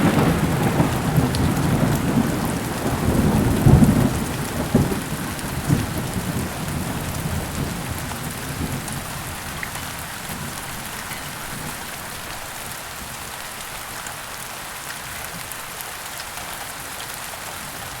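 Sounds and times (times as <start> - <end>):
low thunder rumble: 0.0 - 11.8
heavy rain: 0.0 - 18.0.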